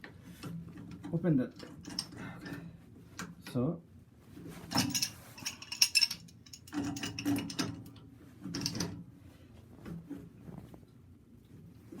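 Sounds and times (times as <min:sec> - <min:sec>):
metal clicking and scraping: 0:04.8 - 0:07.8.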